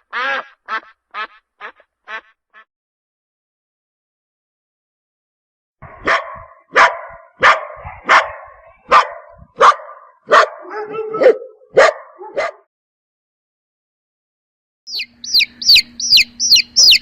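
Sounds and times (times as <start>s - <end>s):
dog barking: 5.8s - 12.7s.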